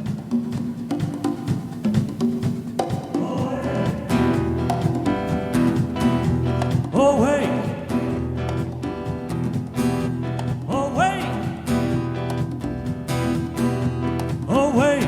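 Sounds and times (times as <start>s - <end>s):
held band chords: 3.4s - 14.5s.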